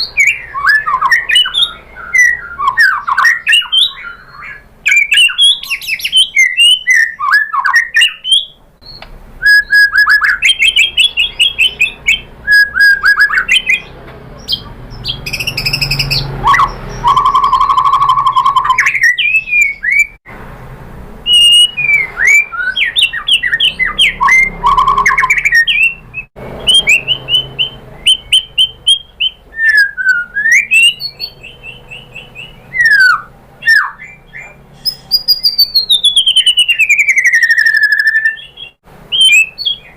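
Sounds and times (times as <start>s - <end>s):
bird singing whistles and trills: 0.0s - 20.2s, 21.3s - 39.9s.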